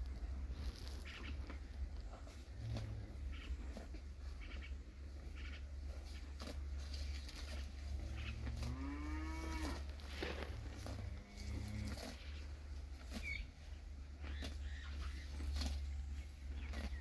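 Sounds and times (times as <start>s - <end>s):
steady low hum: 0.0s - 17.0s
cow mooing: 8.1s - 12.2s.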